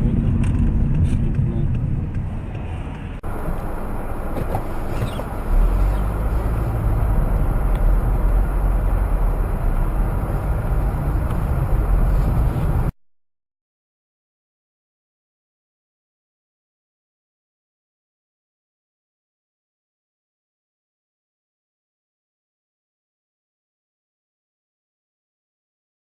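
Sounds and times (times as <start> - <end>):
heavy truck engine rumbling: 0.0 - 12.9.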